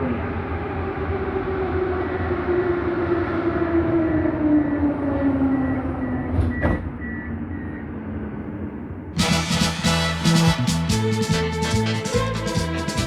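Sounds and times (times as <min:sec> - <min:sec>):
metro train rumble: 0:08.1 - 0:13.0.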